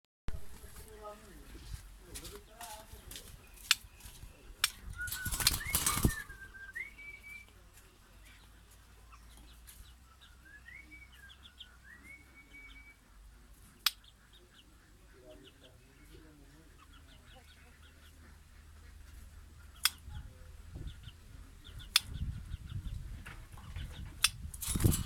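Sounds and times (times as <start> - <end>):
bird wings fluttering: 4.7 - 6.5, 24.5 - 25.0
bird whistling phrases: 4.9 - 7.5, 10.4 - 13.0
sharp click: 19.8 - 20.0, 21.9 - 22.1.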